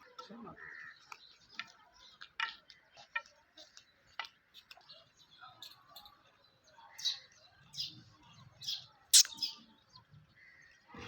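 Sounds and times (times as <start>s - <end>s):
small birds chirping: 0.0s - 11.0s
sharp click: 9.2s - 9.4s.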